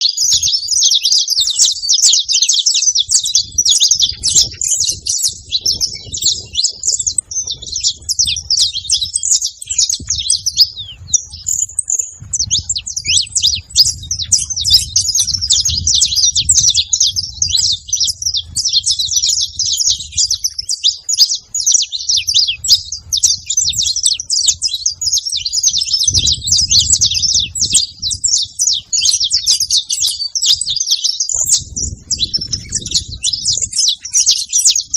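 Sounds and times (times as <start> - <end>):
finches chirping and trilling: 0.0 - 34.9.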